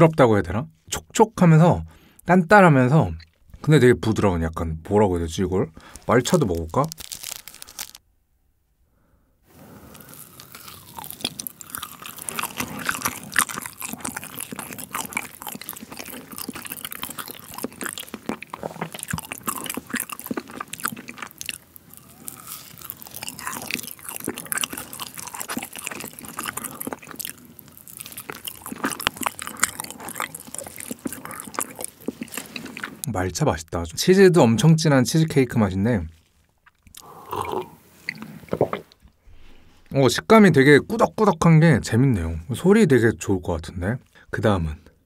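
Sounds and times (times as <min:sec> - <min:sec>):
close chewing and mouth clicks: 0:05.9 - 0:08.0, 0:09.7 - 0:33.1, 0:36.1 - 0:39.2.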